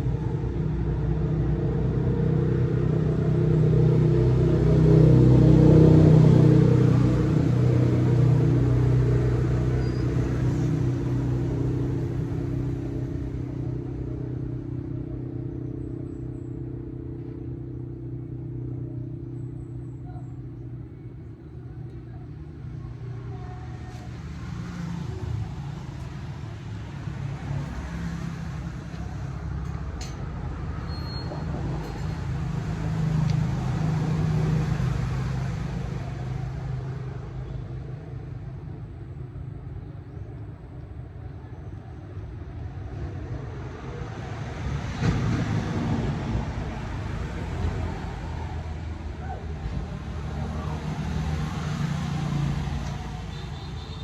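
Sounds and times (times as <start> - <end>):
vehicle engines passing by: 0.0 - 54.0.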